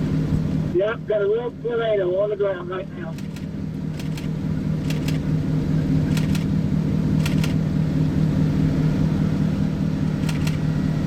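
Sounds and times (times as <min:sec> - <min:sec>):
car engine and road hum: 0:00.0 - 0:11.0
paired clicks: 0:03.2 - 0:05.2, 0:06.1 - 0:06.5, 0:07.2 - 0:07.6, 0:10.2 - 0:10.6.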